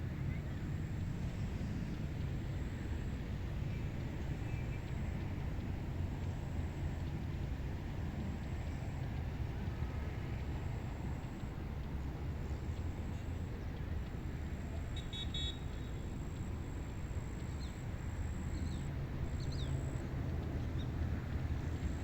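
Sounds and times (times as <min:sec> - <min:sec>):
faint high whine: 0:08.0 - 0:22.0.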